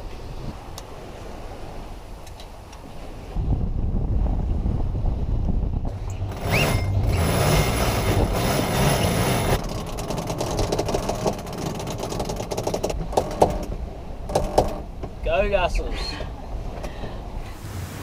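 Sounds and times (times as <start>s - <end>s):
water rushing along hull: 0.0s - 18.0s
wind buffeting microphone: 0.0s - 18.0s
short rising squeak: 6.0s - 9.6s.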